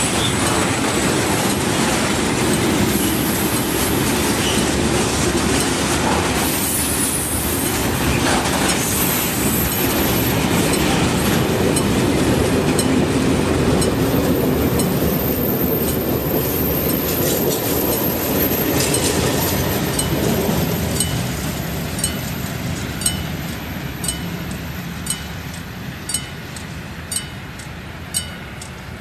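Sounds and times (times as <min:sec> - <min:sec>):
freight wagons rumbling on rails: 0:00.0 - 0:29.0.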